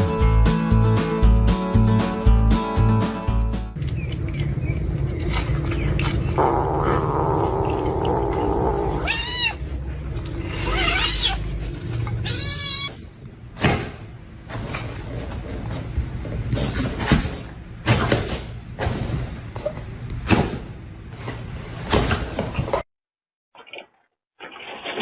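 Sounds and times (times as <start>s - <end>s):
cat meowing: 8.8s - 9.6s, 10.6s - 11.5s, 12.2s - 13.0s.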